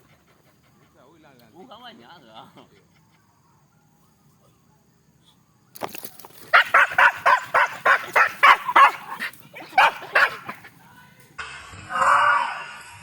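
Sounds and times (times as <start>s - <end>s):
dog barking: 6.5s - 10.7s.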